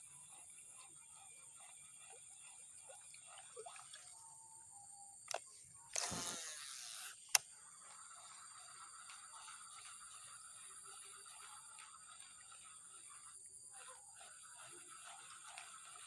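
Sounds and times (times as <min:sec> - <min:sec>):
high-pitched insect trilling: 0:04.8 - 0:15.5
click: 0:05.3 - 0:06.3, 0:07.0 - 0:07.5.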